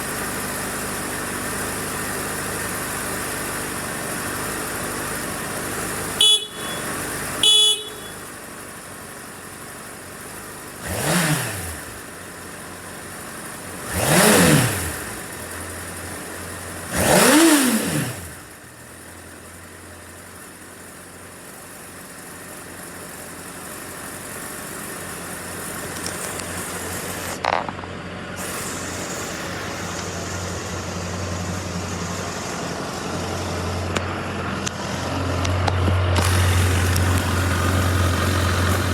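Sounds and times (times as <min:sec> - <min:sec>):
motorcycle engine idling: 0:00.0 - 0:38.9
motorcycle engine revving: 0:00.0 - 0:38.9
short horn beeps: 0:06.2 - 0:08.4.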